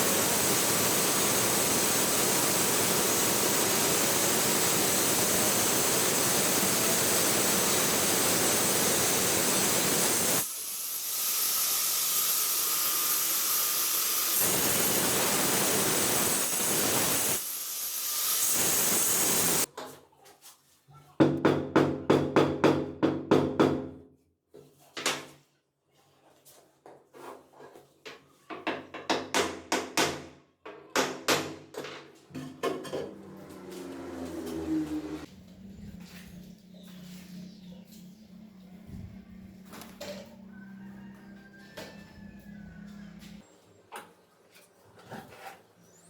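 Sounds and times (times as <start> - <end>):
steady hiss: 0.0 - 19.7.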